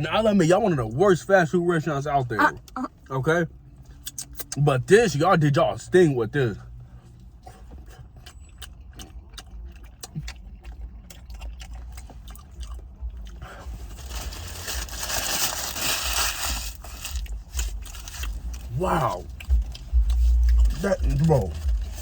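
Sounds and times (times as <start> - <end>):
steady low hum: 4.7 - 22.0
chewing food: 7.0 - 13.9, 17.1 - 22.0
wrapper rustling: 13.8 - 18.6.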